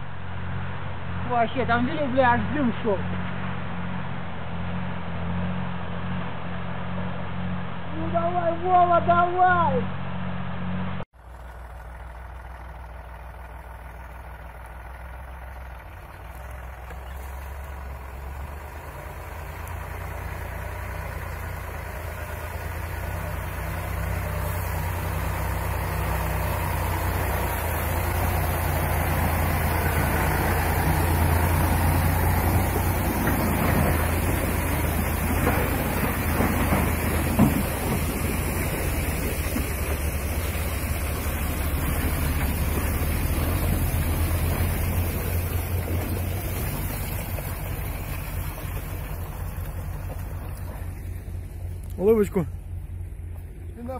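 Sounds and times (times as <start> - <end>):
truck engine under load: 0.0 - 53.9
knocks and rattles: 12.6 - 51.5.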